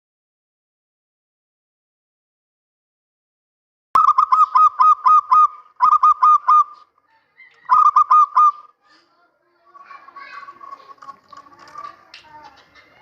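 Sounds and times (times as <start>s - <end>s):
dove cooing: 4.0s - 8.8s.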